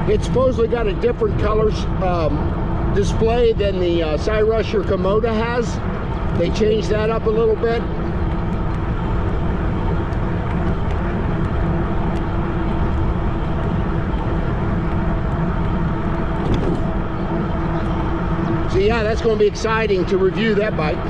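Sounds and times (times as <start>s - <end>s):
bike rolling hum: 0.0s - 21.0s
wind on microphone: 7.9s - 19.0s.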